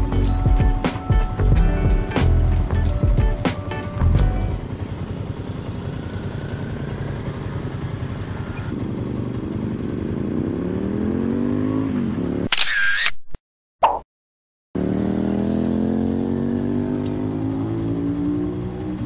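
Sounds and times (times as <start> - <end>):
motorcycle accelerating: 0.1 - 12.5, 14.8 - 19.0
scooter idling: 2.7 - 10.5.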